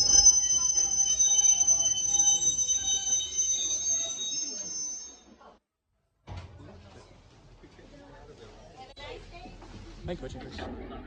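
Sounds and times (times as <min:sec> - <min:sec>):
train wheels squealing on rails: 0:00.0 - 0:05.4.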